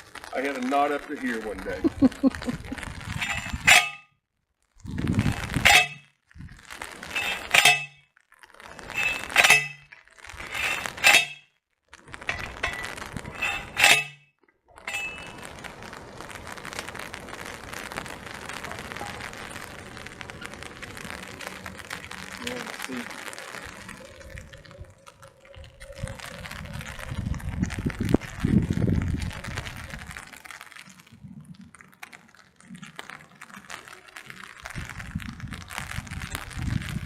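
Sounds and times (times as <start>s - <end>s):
rain hiss: 0.0s - 3.9s, 4.8s - 8.0s, 8.6s - 11.4s, 12.0s - 14.1s, 14.8s - 37.0s
post driver clanging on stake: 3.2s - 4.0s, 5.6s - 6.0s, 7.1s - 8.0s, 8.9s - 9.8s, 10.5s - 11.4s, 12.3s - 14.2s
post driver scraping up stake: 5.5s - 6.0s, 7.1s - 8.0s, 8.8s - 11.4s, 12.2s - 14.2s.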